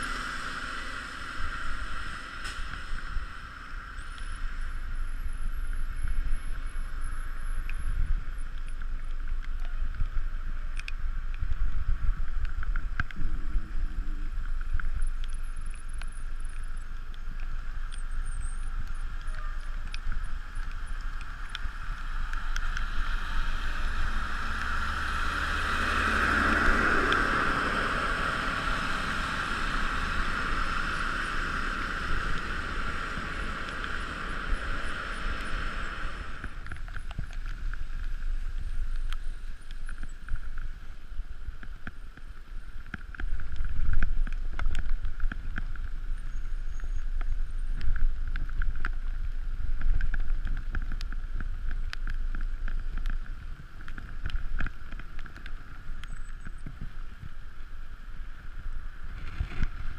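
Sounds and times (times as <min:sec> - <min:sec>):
bicycle tyre and road noise: 0:00.0 - 0:59.9
bike rattles and clicks: 0:03.9 - 0:59.9
wind rushing over microphone: 0:17.7 - 0:59.9.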